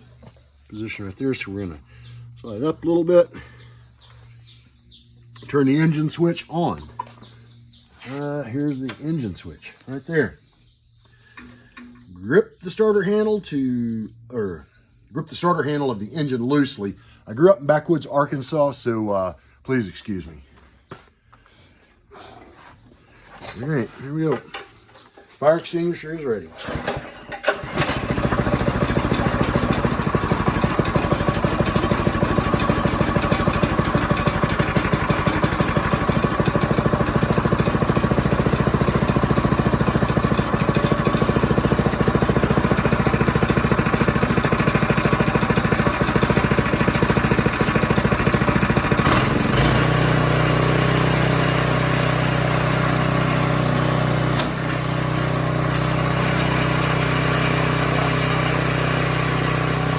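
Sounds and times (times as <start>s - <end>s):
rototiller engine running: 25.8s - 59.9s.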